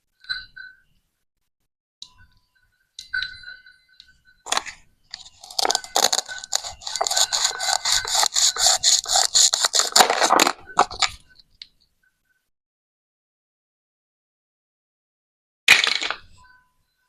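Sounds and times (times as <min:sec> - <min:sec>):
ringing clink: 0:02.0 - 0:08.2
knife sawing plastic: 0:05.2 - 0:11.0.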